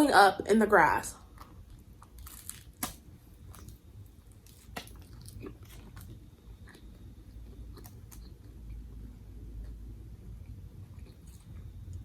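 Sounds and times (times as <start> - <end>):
chewing crunchy food: 1.2 - 9.8, 10.4 - 12.0.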